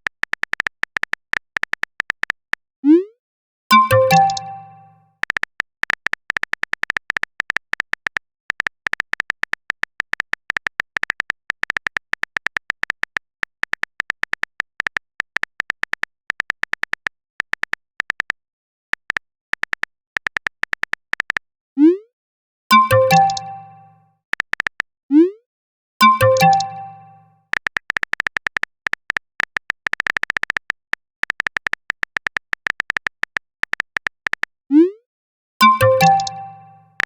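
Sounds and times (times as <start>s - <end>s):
chat notification tone: 3.7s - 5.0s, 22.7s - 24.0s, 26.0s - 27.3s, 34.7s - 35.0s, 35.6s - 37.0s
keyboard typing clicks: 3.7s - 18.4s, 19.0s - 21.4s, 22.7s - 24.9s, 26.0s - 34.8s, 35.6s - 37.0s.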